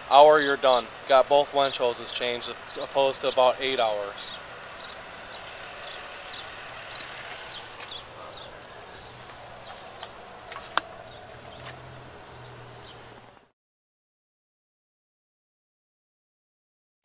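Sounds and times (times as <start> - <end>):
steady hiss: 0.0 - 13.3
small birds chirping: 0.3 - 13.5.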